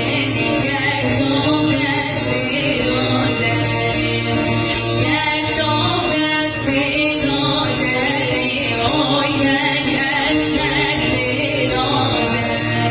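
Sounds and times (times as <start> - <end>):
instrumental accompaniment: 0.0 - 12.9
woman singing: 0.0 - 12.9.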